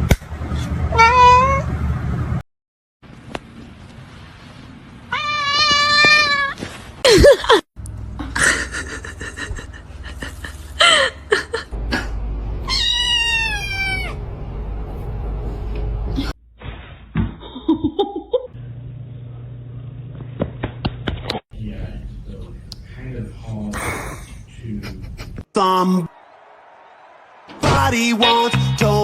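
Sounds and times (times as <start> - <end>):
cats meowing: 1.0 - 1.6, 5.1 - 6.6, 12.7 - 14.2.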